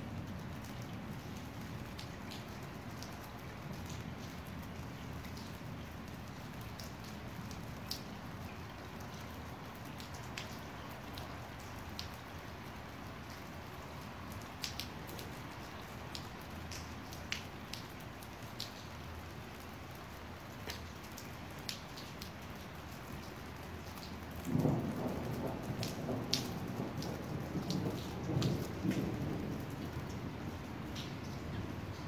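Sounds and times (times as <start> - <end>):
rain falling: 0.0 - 32.0
low rumble of thunder: 24.3 - 32.0.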